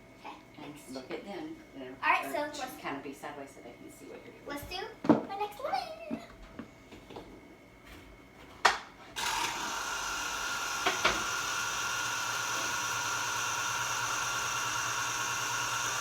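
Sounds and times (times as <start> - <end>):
juicer motor whining: 9.2 - 16.0.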